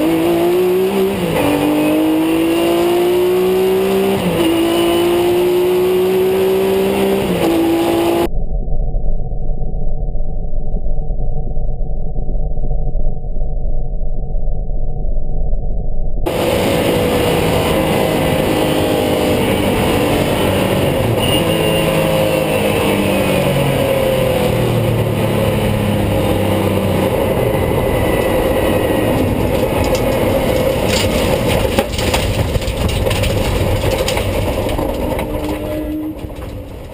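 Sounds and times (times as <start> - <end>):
race car engine: 0.0 - 8.3, 16.3 - 36.9
sharp clicks and knocks: 29.1 - 36.9.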